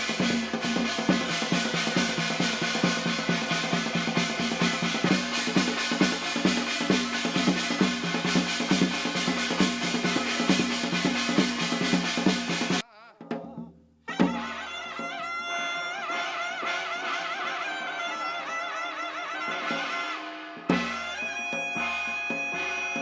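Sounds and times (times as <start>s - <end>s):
fast dense drumming: 0.0s - 12.8s.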